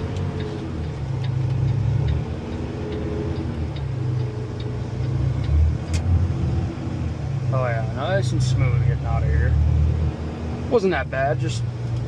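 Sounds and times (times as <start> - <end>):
faint regular ticking: 0.0 - 6.3
truck engine running: 0.0 - 9.5.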